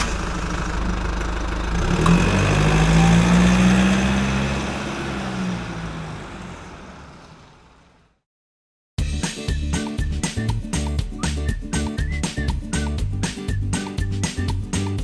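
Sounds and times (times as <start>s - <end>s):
engine running: 0.0s - 8.1s.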